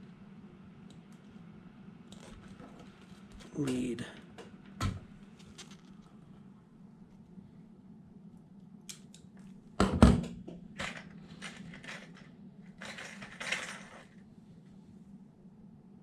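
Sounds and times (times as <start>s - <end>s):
metal parts clattering: 10.8s - 14.2s.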